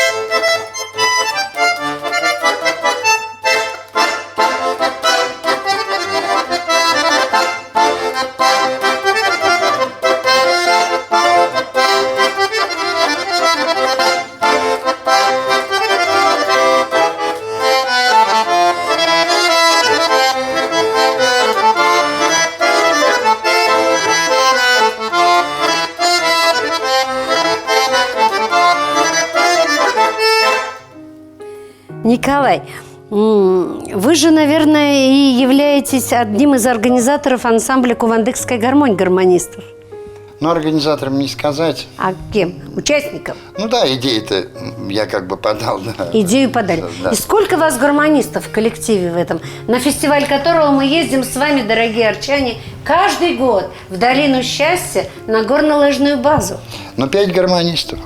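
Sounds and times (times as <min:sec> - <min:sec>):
button accordion dance tune: 0:00.0 - 0:31.0, 0:46.1 - 0:58.0.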